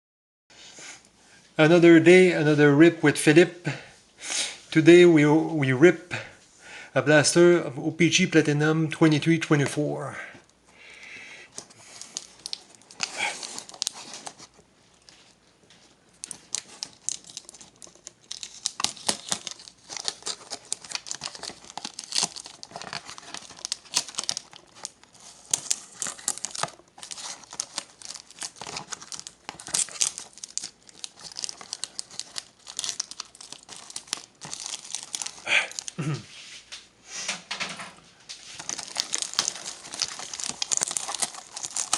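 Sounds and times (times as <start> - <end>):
plastic wrapping tearing and crinkling: 11.5 - 36.2, 38.4 - 41.9.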